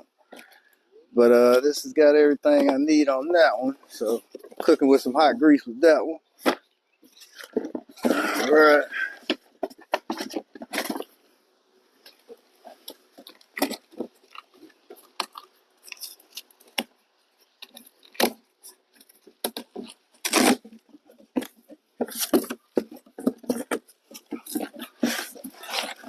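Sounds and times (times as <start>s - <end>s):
packaging crinkling and tearing: 24.1s - 26.0s.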